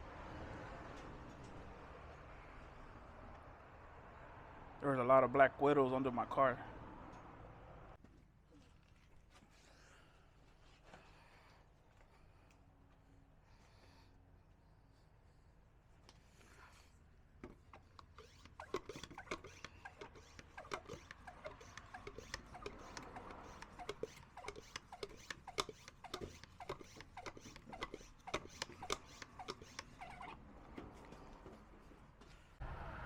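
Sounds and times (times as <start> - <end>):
small scratches and clicks: 17.4 - 32.4.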